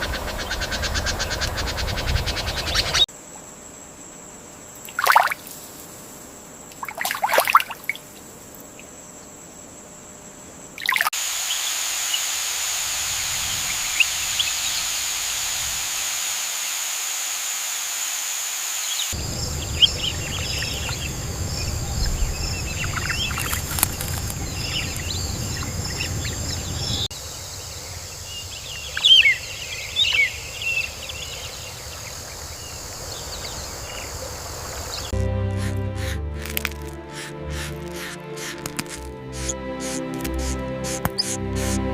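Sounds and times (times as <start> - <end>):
birds chirping: 0.0 - 3.1, 13.3 - 15.3, 18.9 - 41.9
steady background hiss: 0.0 - 35.2.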